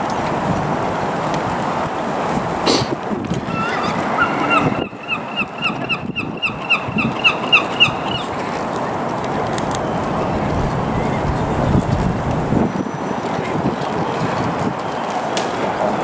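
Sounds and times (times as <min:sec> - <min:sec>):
wind buffeting microphone: 0:00.0 - 0:16.0
bird chirping: 0:03.6 - 0:08.3.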